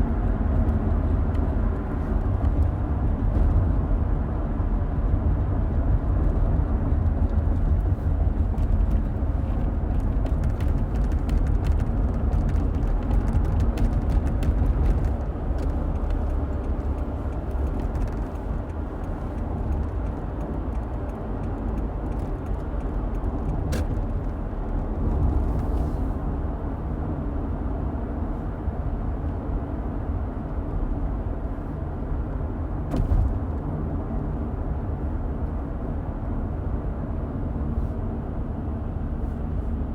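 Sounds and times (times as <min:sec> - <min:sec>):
car road and engine rumble: 0:00.0 - 0:39.9
light clicks and ticks: 0:09.6 - 0:24.0.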